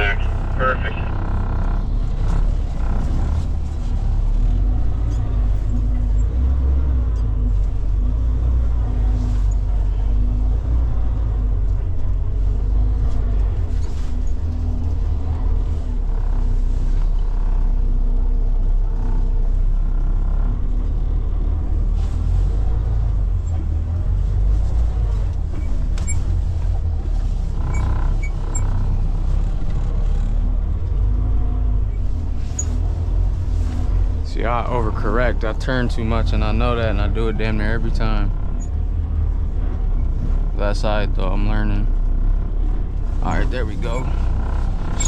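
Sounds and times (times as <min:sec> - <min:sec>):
diesel truck engine rumbling: 0:00.0 - 0:45.0.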